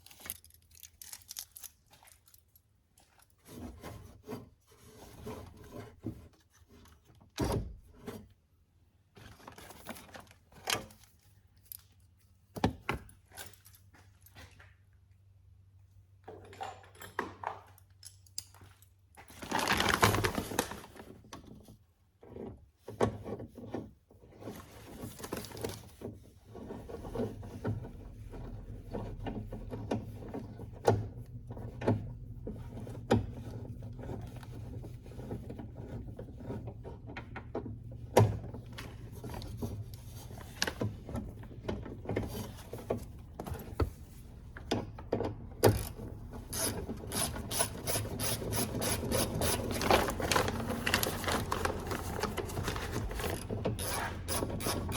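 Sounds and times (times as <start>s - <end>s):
rasping scrape: 46.4s - 54.9s.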